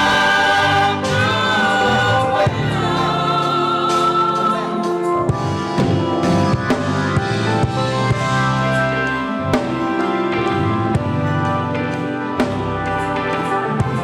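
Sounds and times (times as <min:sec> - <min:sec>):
gospel choir singing: 0:00.0 - 0:08.4.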